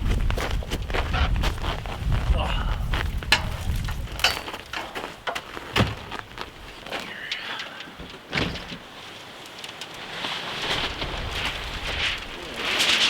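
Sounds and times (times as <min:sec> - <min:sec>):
knocks and thumps: 0:03.3 - 0:06.2.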